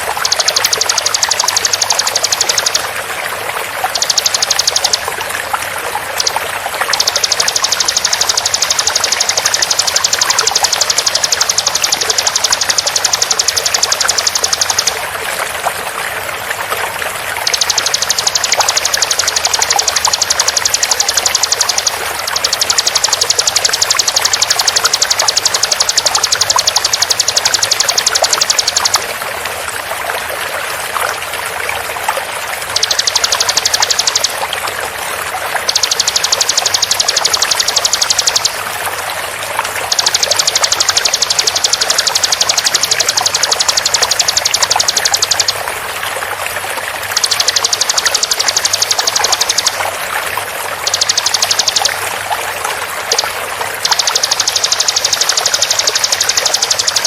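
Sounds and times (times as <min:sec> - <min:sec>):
bird rattling trills: 0:00.0 - 0:03.0, 0:03.8 - 0:05.1, 0:06.2 - 0:15.1, 0:17.4 - 0:29.0, 0:32.7 - 0:34.4, 0:35.6 - 0:38.6, 0:39.8 - 0:45.6, 0:47.1 - 0:49.8, 0:50.8 - 0:52.2, 0:53.0 - 0:57.0
running water: 0:00.0 - 0:57.0.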